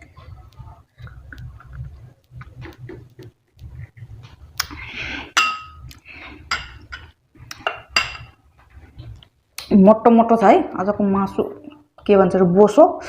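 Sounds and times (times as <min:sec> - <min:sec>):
spoon clinking against plate: 0:05.4 - 0:05.9, 0:06.5 - 0:08.4.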